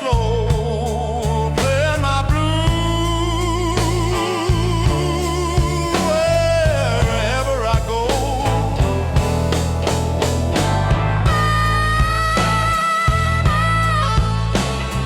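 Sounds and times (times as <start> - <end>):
blues lead line with vibrato: 0.0 - 15.0
steady bass: 0.0 - 15.0
drum beat: 3.8 - 15.0.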